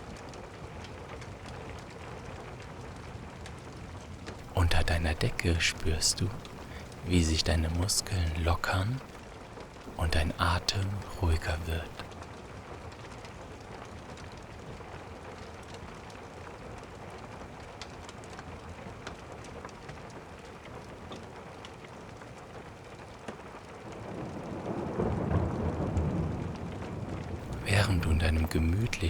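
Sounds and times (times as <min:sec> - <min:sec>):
steady rain: 0:04.5 - 0:09.2, 0:09.9 - 0:12.1, 0:23.7 - 0:29.0.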